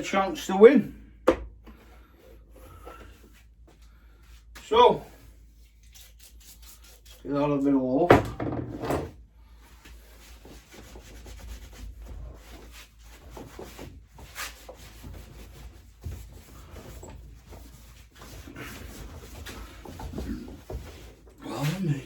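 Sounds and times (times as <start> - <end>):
rubbing and scraping by hand: 5.2 - 7.7, 9.6 - 22.0.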